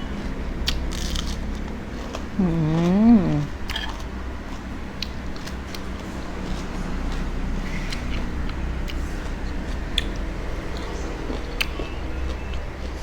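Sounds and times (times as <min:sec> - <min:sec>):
person's drawn-out voiced sound: 0:02.4 - 0:03.5.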